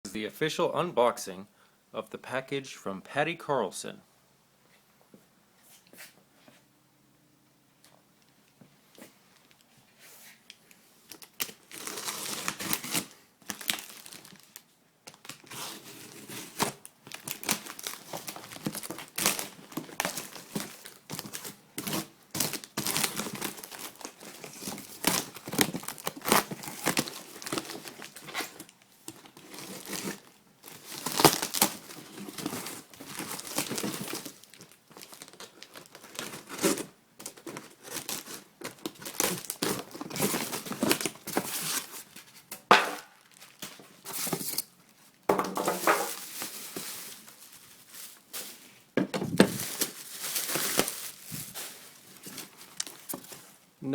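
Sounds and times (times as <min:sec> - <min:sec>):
packing material tearing and crumpling: 0:11.1 - 0:45.0, 0:45.8 - 0:48.6, 0:49.4 - 0:53.4.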